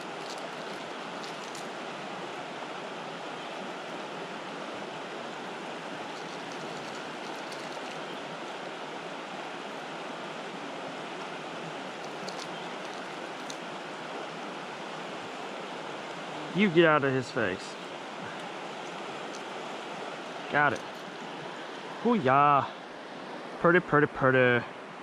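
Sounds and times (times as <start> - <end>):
river rapids rushing: 0.0 - 22.9.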